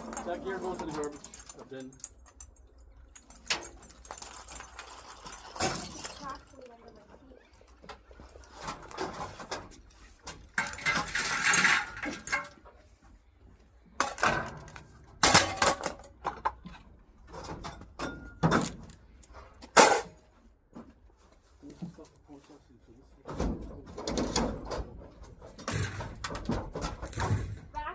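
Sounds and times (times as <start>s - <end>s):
scrap metal clanks and knocks: 0.0s - 2.5s, 8.4s - 13.3s, 13.9s - 22.1s, 23.2s - 27.9s
scrap metal rattling and scraping: 0.0s - 2.6s, 3.2s - 13.2s, 13.9s - 20.4s, 23.2s - 27.9s.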